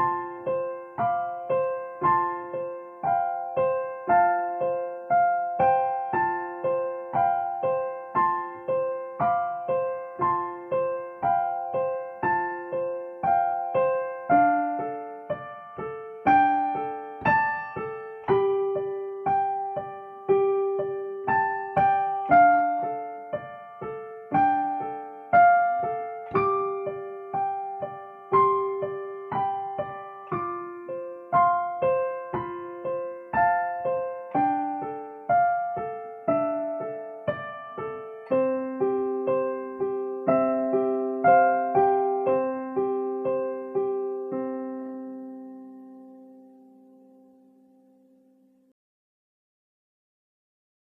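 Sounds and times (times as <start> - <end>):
slow solo piano melody: 0.0 - 48.7.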